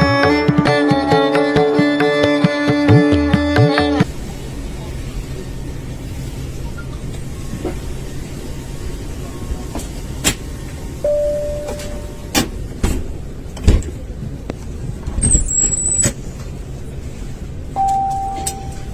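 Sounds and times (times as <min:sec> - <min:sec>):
airliner cabin hum: 0:04.0 - 0:18.9
steady tone: 0:11.0 - 0:12.4.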